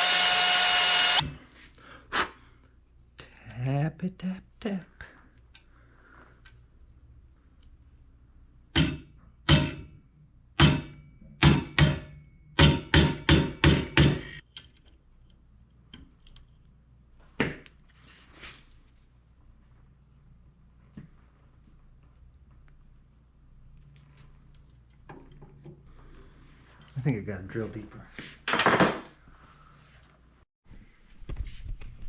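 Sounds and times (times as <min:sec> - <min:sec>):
hammer striking metal: 0:08.8 - 0:10.0, 0:10.6 - 0:14.4.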